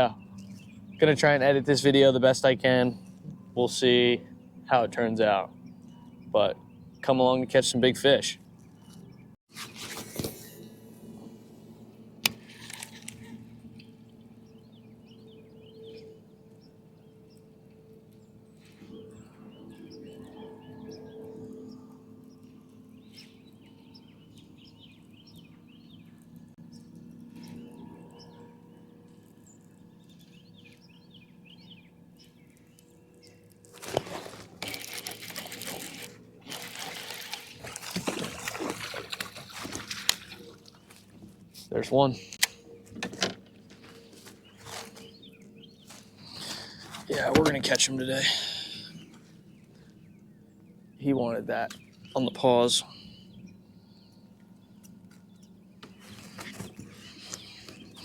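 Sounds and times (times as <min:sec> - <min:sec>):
steady low hum: 0:09.9 - 0:58.0
water splashing and sloshing: 0:33.6 - 0:41.7.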